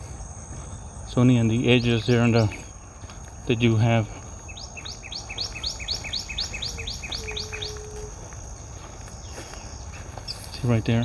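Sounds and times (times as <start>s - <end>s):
songbird whistling: 4.5s - 8.3s.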